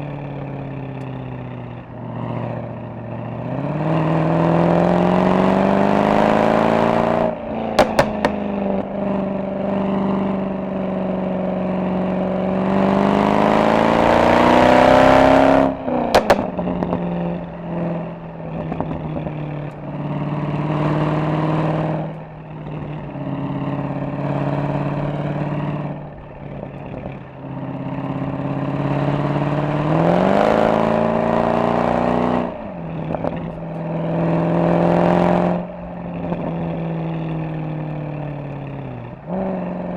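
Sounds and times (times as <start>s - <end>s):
car exhaust pulling hard: 0.0s - 39.9s
exhaust pops on overrun: 7.6s - 8.9s, 15.9s - 17.1s.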